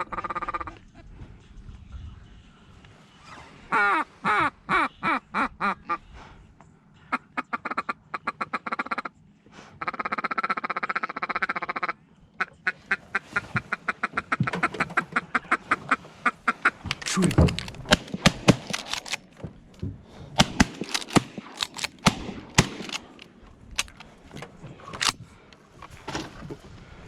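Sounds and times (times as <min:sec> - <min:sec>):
duck quacking: 0:00.0 - 0:00.9, 0:03.7 - 0:06.1, 0:07.0 - 0:09.2, 0:09.8 - 0:17.7.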